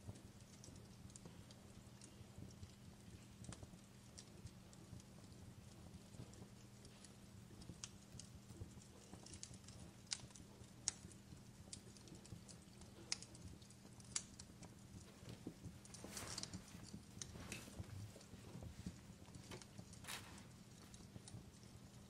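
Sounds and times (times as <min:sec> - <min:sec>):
wood fire crackling: 0:00.0 - 0:22.0
fire hissing flare-ups: 0:14.2 - 0:22.0.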